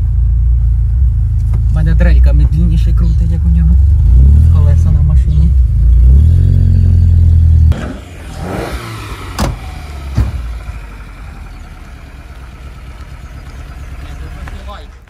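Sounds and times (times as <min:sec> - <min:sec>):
car engine running loud: 0:00.0 - 0:15.0
distant car engine: 0:00.0 - 0:15.0
low rumble: 0:00.0 - 0:15.0
sharp knocks: 0:09.4 - 0:10.5.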